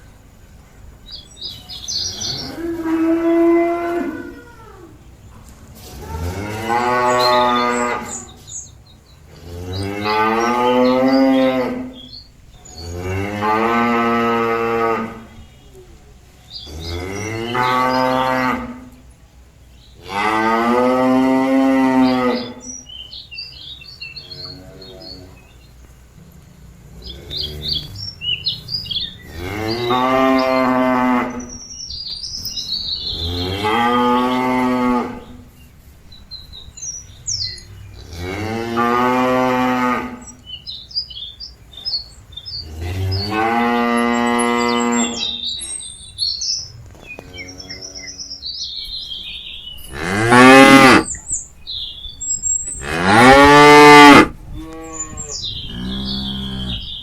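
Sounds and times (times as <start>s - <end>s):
birds chirping: 0.0s - 57.0s
cow mooing: 38.1s - 40.3s, 49.9s - 51.2s, 52.8s - 57.0s.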